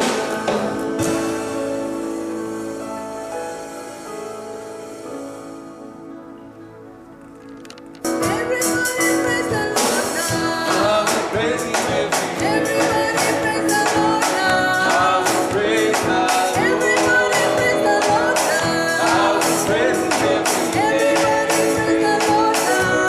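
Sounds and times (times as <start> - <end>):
person singing: 0.0 - 2.6, 8.2 - 23.0
worship band playing: 0.0 - 23.0
drum beat: 9.8 - 23.0.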